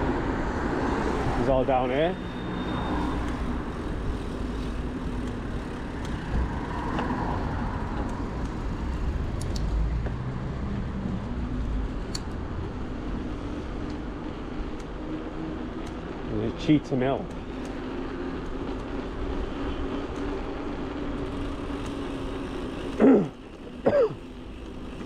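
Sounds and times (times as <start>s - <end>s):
low traffic rumble: 0.0s - 25.0s
passing cars: 0.0s - 25.0s.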